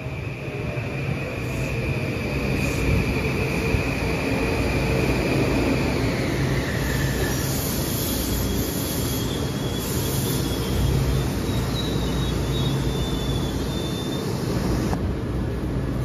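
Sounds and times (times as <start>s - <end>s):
train rumble: 0.0s - 16.0s
high brake squeal: 5.7s - 15.0s.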